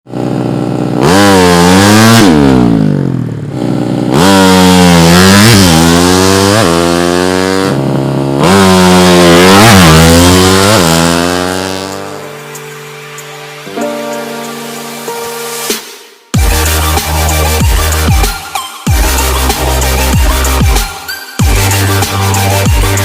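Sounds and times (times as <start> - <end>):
motorcycle engine revving hard: 0.1 - 12.4, 21.4 - 23.0.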